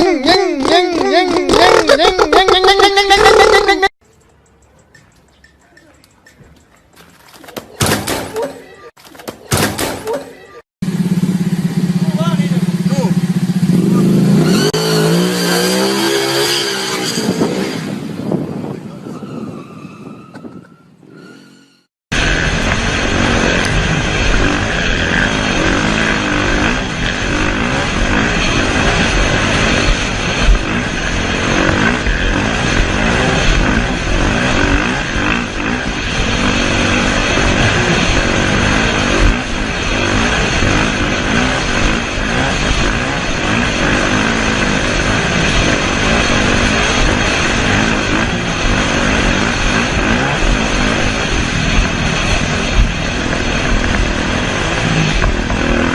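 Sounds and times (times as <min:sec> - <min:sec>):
motorcycle engine running hard: 0:10.8 - 0:16.3, 0:22.2 - 0:55.9
motorcycle engine revving: 0:10.8 - 0:18.7, 0:22.1 - 0:55.9
steady rush of noise: 0:22.1 - 0:55.9.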